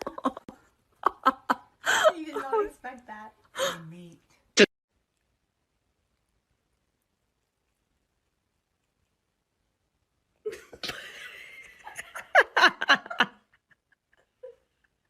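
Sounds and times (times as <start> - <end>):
person laughing: 0.0 - 2.6, 10.5 - 15.0.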